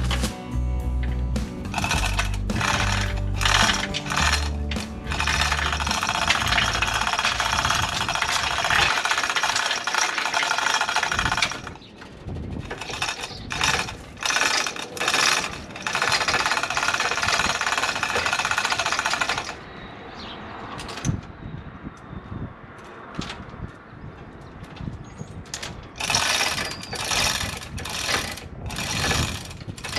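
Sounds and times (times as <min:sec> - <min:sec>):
pneumatic impact tool hammering: 0:01.4 - 0:11.7, 0:26.0 - 0:29.9.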